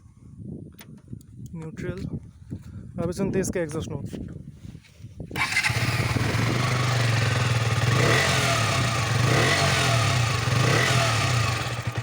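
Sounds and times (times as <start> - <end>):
motorcycle engine revving: 5.4 - 12.0.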